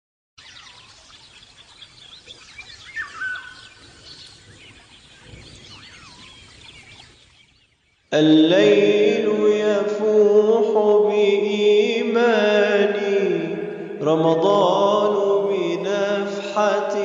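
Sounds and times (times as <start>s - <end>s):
loud whistled bird call: 0.4s - 8.0s
birds chirping and whistling: 0.4s - 8.1s.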